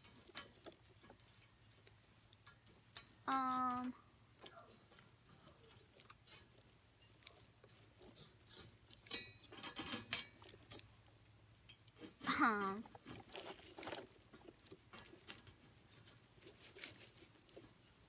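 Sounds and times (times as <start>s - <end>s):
faint clicks and rustles: 0.0s - 18.0s
person humming: 3.3s - 4.0s, 12.3s - 12.8s.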